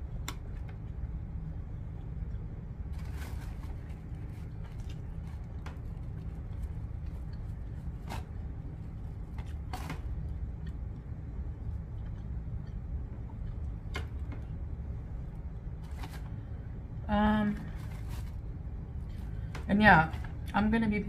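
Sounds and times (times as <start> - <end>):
low hum: 0.0 - 21.0
person chewing food: 3.8 - 14.6.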